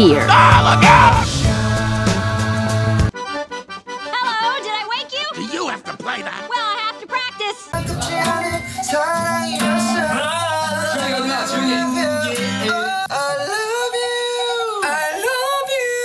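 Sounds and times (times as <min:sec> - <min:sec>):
person singing: 0:00.0 - 0:03.1, 0:07.8 - 0:16.0
instrumental accompaniment: 0:00.0 - 0:16.0.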